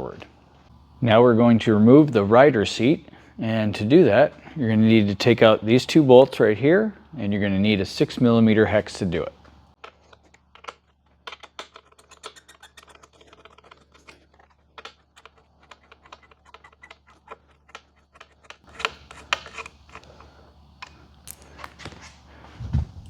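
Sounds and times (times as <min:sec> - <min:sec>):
hex tool clicking on bolts: 0:09.8 - 0:21.4.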